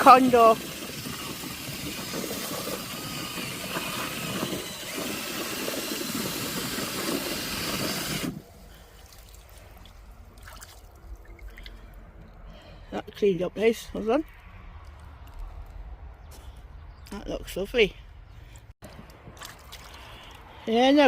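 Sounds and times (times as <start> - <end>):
water jet spraying: 0.0 - 9.8.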